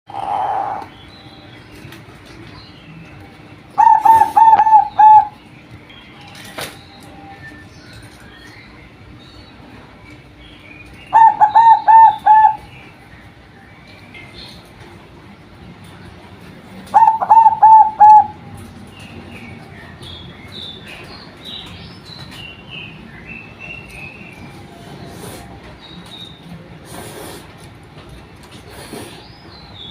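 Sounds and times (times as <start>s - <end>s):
dove cooing: 0.1s - 0.9s, 3.8s - 5.4s, 11.1s - 12.7s, 16.9s - 18.5s.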